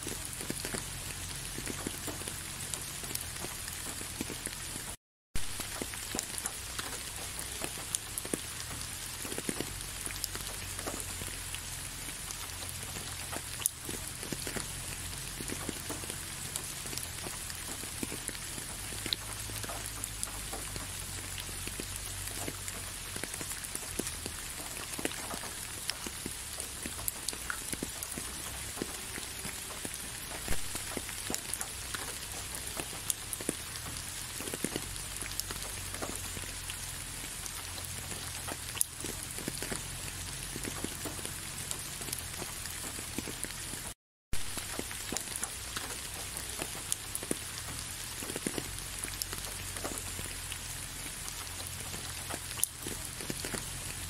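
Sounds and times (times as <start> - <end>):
rain falling: 0.0 - 54.0
raindrops ticking close by: 0.0 - 54.0.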